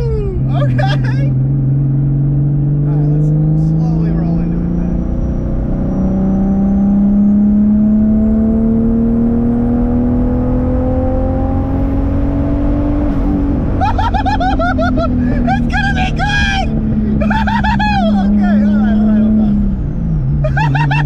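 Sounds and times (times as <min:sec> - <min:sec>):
car engine pulling under load: 0:00.4 - 0:15.7.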